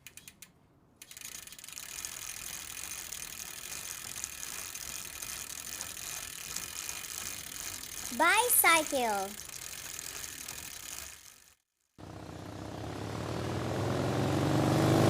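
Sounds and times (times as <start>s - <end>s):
bicycle freewheel ratchet clicking: 0.0s - 8.6s, 9.3s - 11.6s.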